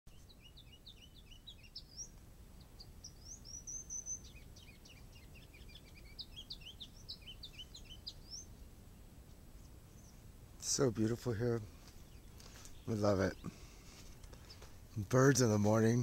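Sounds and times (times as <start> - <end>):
high bird trill: 0.1 - 10.3
songbirds chirping: 0.1 - 16.0.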